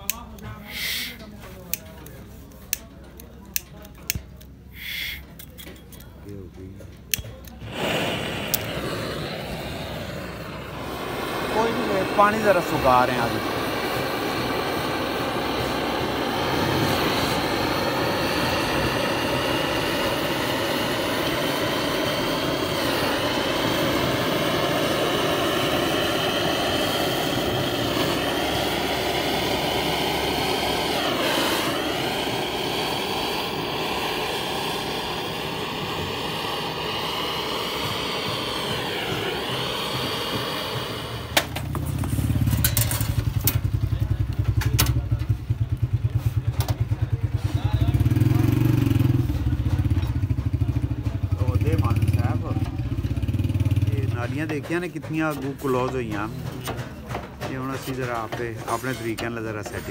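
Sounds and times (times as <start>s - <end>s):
machine motor whining: 7.3s - 43.6s
low rumble: 7.6s - 46.1s.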